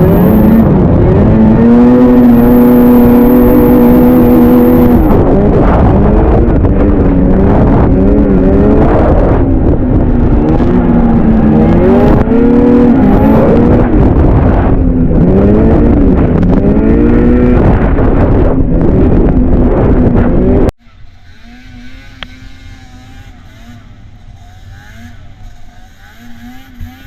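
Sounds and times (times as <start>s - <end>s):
low rumble of wind: 0.0s - 27.0s
snowmobile engine revving: 0.0s - 27.0s.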